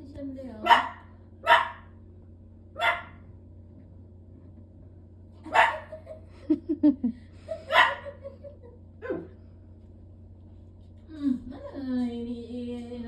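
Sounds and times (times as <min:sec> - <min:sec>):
dog barking and yipping: 0:00.6 - 0:01.9, 0:02.8 - 0:03.2, 0:05.5 - 0:06.0, 0:07.7 - 0:08.2.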